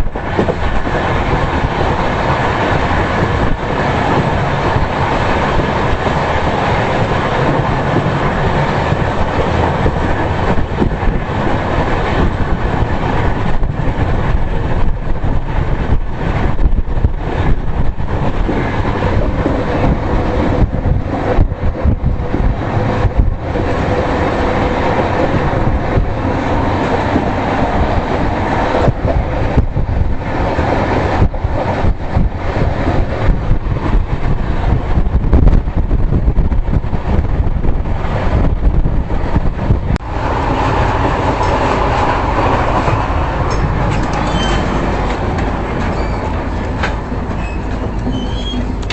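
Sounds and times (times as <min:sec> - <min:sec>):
train rumbling on track: 0:00.0 - 0:48.9
wheels clicking over rail joints: 0:38.4 - 0:48.9.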